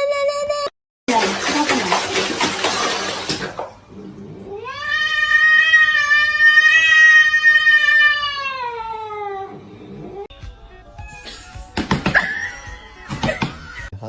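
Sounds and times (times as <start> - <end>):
cat yowling: 4.5 - 10.3.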